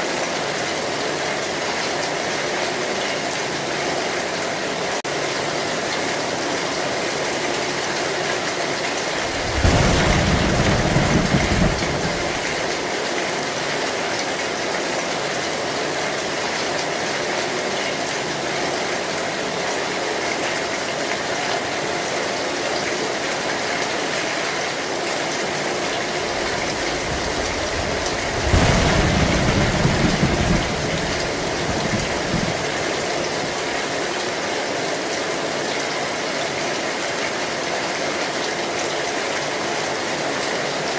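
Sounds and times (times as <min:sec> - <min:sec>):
heavy rain on a metal roof: 0:00.0 - 0:40.9
thunder rolling: 0:09.1 - 0:12.9, 0:25.9 - 0:33.7.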